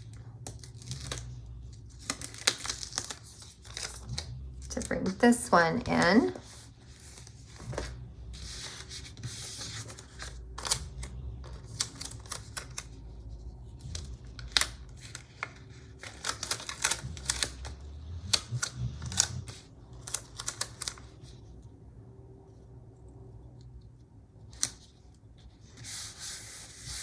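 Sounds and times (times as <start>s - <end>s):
stickers peeled and pressed: 0.0s - 21.5s
low steady hum: 0.0s - 27.0s.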